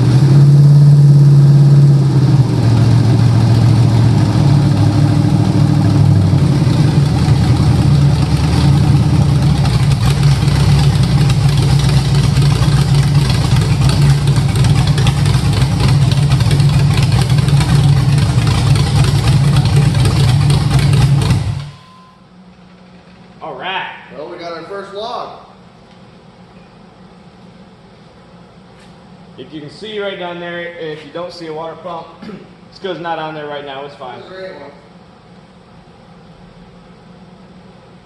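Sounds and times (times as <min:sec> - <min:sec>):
engine idling loudly: 0:00.0 - 0:21.8.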